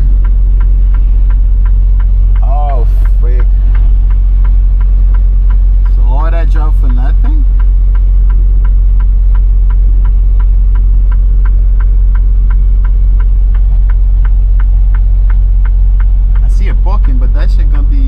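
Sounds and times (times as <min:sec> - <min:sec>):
diesel truck engine drone: 0:00.0 - 0:18.0
light regular ticking: 0:00.0 - 0:18.0.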